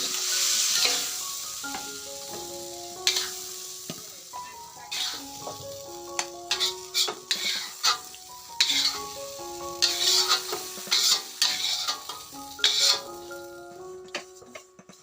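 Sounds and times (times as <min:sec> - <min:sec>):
food sizzling in a pan: 0:00.0 - 0:15.0
utensil scraping a pan: 0:03.1 - 0:03.4, 0:06.5 - 0:08.0, 0:08.6 - 0:09.2, 0:09.8 - 0:13.2.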